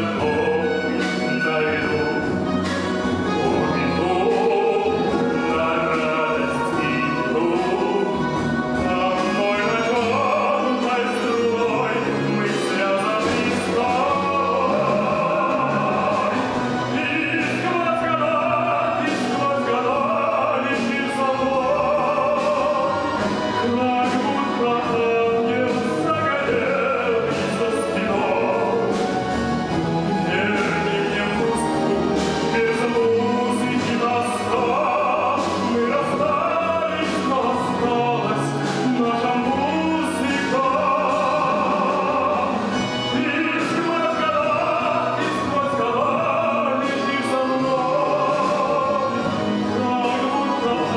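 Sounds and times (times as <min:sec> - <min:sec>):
orchestra playing: 0:00.0 - 0:50.9
person singing with vibrato: 0:00.0 - 0:50.9.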